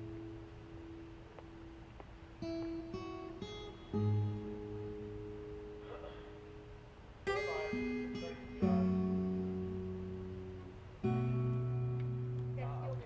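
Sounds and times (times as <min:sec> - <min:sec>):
acoustic guitar chords ringing: 0:00.0 - 0:13.0.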